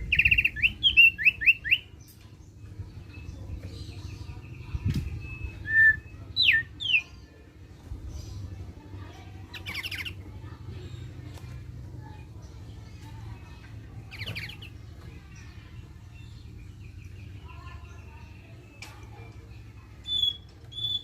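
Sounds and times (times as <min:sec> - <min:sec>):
bird whistling calls: 0:05.0 - 0:07.0, 0:20.0 - 0:21.0
bird rapid trill: 0:20.0 - 0:21.0.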